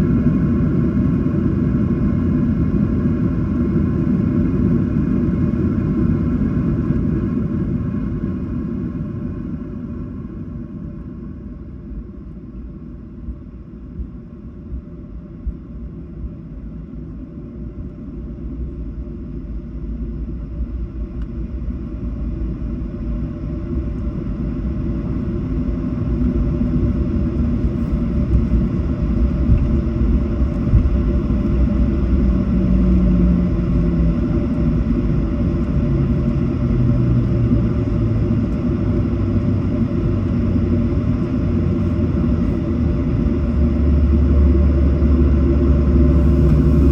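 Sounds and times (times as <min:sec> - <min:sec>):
airplane cabin rumble: 0:00.0 - 0:46.9
low tone stepping down in pitch: 0:45.7 - 0:46.9.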